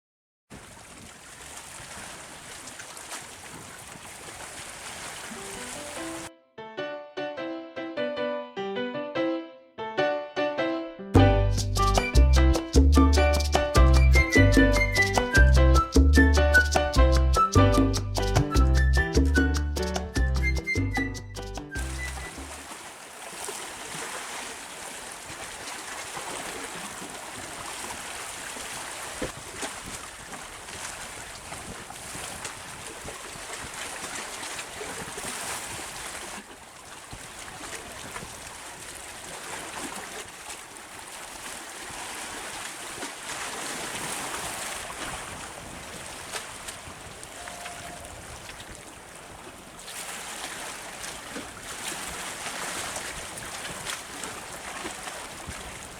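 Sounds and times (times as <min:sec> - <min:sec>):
moving water: 0:00.5 - 0:06.3, 0:18.2 - 0:55.9.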